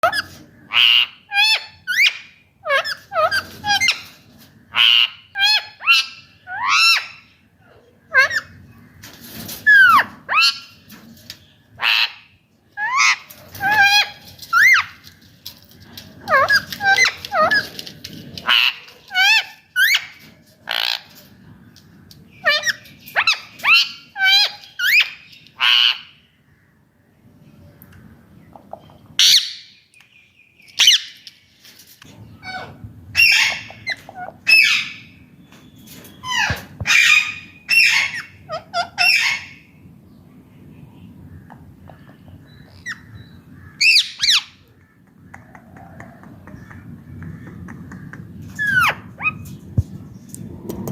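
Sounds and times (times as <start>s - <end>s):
parakeet squawking: 29.2s - 29.6s.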